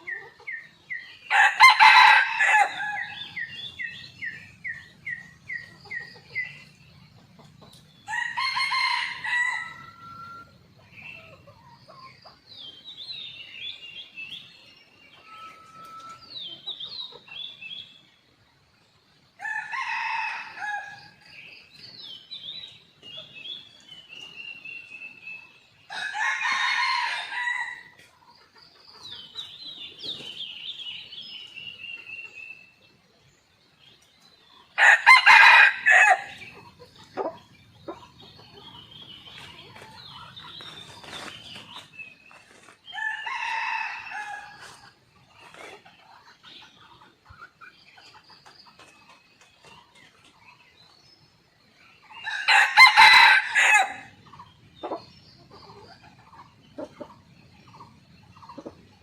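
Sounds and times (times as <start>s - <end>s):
small birds chirping: 0.0s - 59.0s
roosters crowing: 1.3s - 3.5s, 8.0s - 10.5s, 19.4s - 21.2s, 25.9s - 27.9s, 34.8s - 36.6s, 42.9s - 44.9s, 52.2s - 54.2s.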